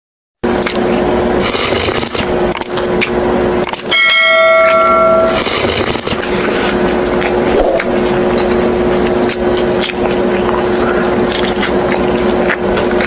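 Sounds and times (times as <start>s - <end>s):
steady hum: 0.5s - 13.0s
bell-like ring: 3.9s - 5.4s.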